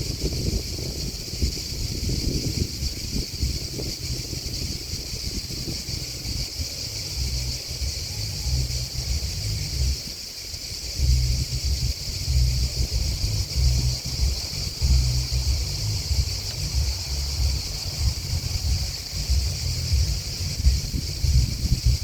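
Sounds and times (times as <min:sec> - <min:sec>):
insects trilling: 0:00.0 - 0:22.0
wind buffeting microphone: 0:00.0 - 0:22.0.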